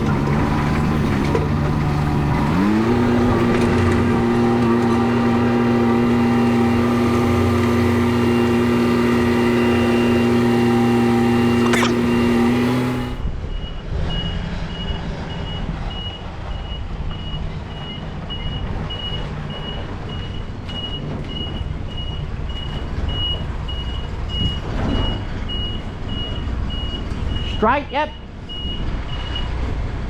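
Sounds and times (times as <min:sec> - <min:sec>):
loud steady engine drone: 0:00.0 - 0:17.2
truck reversing alarm beeping: 0:00.0 - 0:29.6
diesel engine running low: 0:00.0 - 0:30.0.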